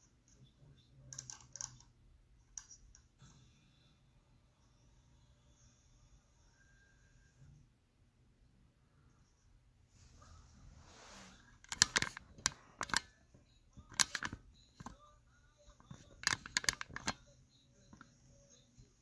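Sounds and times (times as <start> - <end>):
sharp clicks and snaps: 11.7 - 13.1, 13.8 - 15.0, 15.8 - 17.2.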